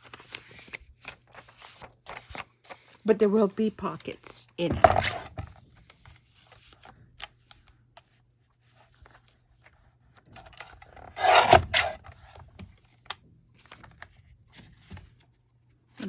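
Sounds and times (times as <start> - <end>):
paper scraping rustle: 0.0 - 4.1, 8.7 - 12.4.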